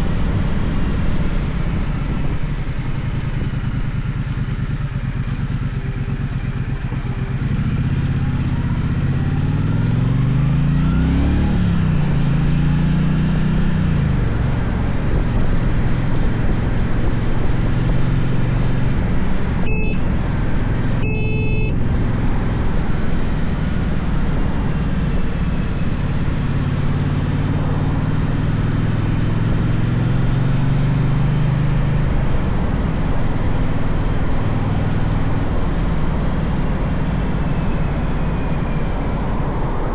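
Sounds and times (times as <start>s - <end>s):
wind noise: 0.0s - 4.1s
motorcycle engine revving: 0.0s - 39.9s.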